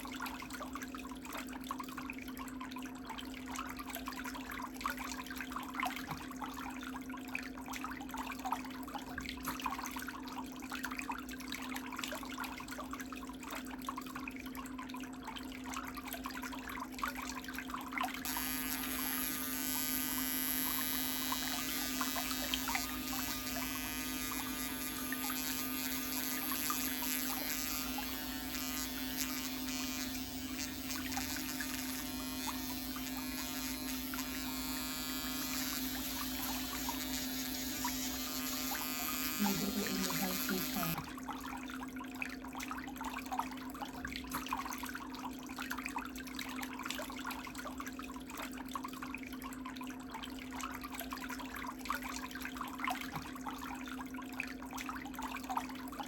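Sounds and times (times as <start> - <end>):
electric nail file humming: 18.2 - 41.1
bit grinding toenail: 18.3 - 41.0.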